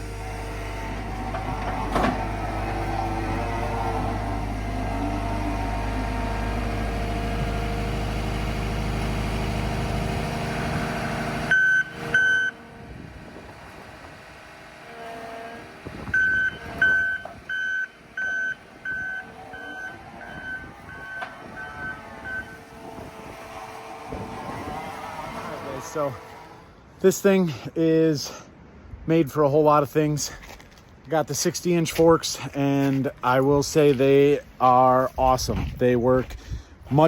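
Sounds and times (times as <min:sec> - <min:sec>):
skid steer engine running: 0:00.0 - 0:27.0
reversing alarm beeps: 0:11.5 - 0:12.6, 0:16.2 - 0:22.6.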